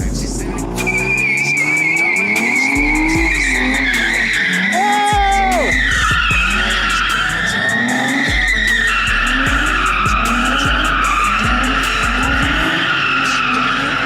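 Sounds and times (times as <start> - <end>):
music with deep bass beat: 0.0 - 13.1
car engine revving: 0.0 - 14.0
car tyres squealing: 0.3 - 14.0.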